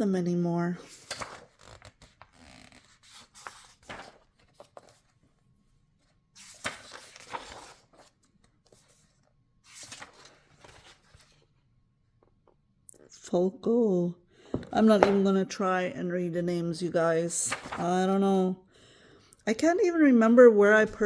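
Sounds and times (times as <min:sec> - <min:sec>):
paper pages rustling: 0:00.8 - 0:05.4, 0:06.4 - 0:11.5, 0:14.9 - 0:15.4, 0:17.4 - 0:18.0
page-turn swishes: 0:00.9 - 0:05.2, 0:06.4 - 0:11.4.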